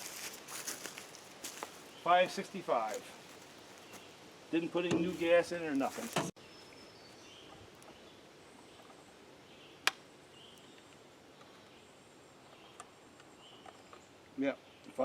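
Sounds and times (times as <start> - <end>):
bird chirps: 6.4 - 15.0.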